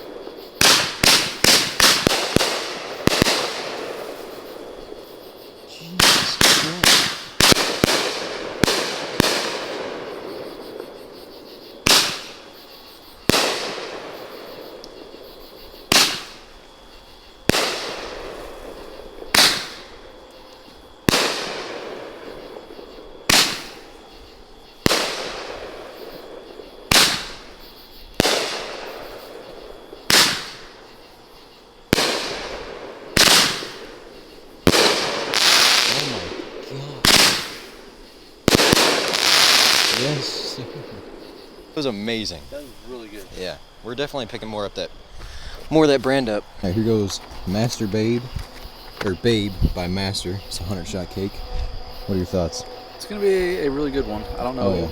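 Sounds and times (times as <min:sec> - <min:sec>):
fireworks firing loud reports: 0:00.0 - 0:12.6, 0:13.2 - 0:16.7, 0:17.4 - 0:31.0, 0:31.8 - 0:42.4.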